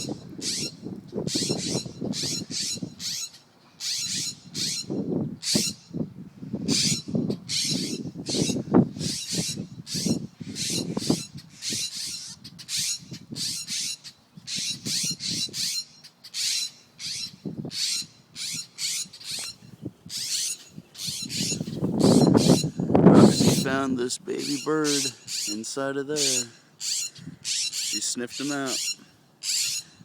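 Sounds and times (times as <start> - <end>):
birds giving harsh alarm calls: 0.0 - 6.0, 6.6 - 30.0.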